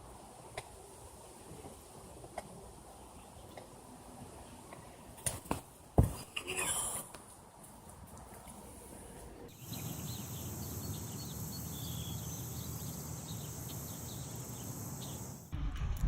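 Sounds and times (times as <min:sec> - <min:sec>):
bird chirps: 0:09.5 - 0:15.5
high insect drone: 0:09.5 - 0:15.5
low rumble: 0:15.5 - 0:16.0.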